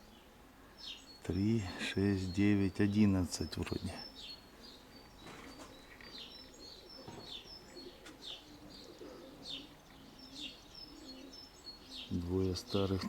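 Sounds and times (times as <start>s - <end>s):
small birds chirping: 0.0s - 13.0s
pigeons cooing: 3.7s - 13.0s.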